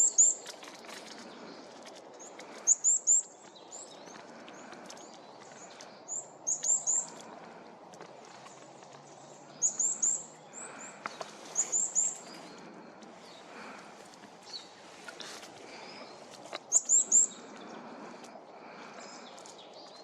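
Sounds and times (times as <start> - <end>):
songbird high call notes: 9.6 - 10.9.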